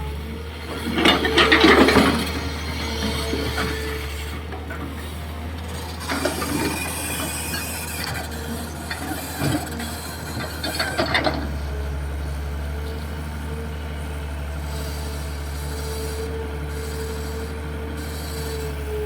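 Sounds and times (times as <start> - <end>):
excavator diesel engine running: 0.0 - 19.0
metallic clanks and squeals: 0.6 - 11.8.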